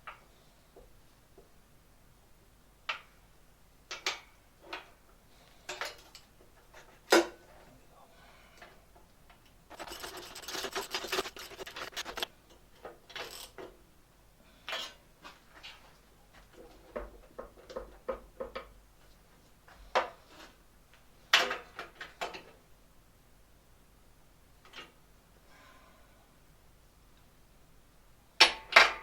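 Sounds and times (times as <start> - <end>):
metal parts and tools clicking: 9.7 - 12.3
rough scraping rummaging: 9.7 - 12.3.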